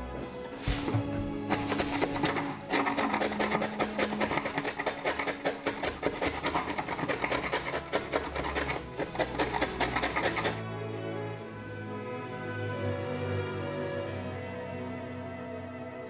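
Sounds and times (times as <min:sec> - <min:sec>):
background music: 0:00.0 - 0:16.0
chisel scraping wood: 0:00.1 - 0:10.6.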